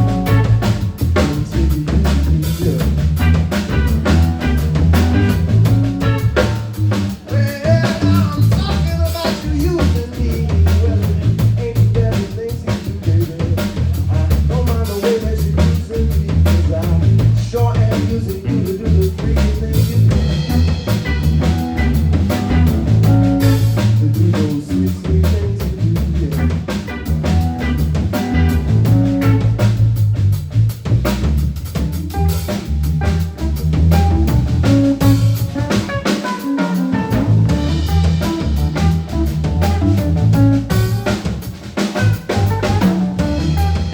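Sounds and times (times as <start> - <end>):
melodic lead line: 0.0 - 1.2, 3.2 - 6.8, 20.3 - 23.9, 27.1 - 29.9, 32.0 - 41.2, 41.9 - 43.9
bass line: 0.0 - 43.9
blues band playing: 0.0 - 43.9
drum kit with rimshots: 0.0 - 43.9.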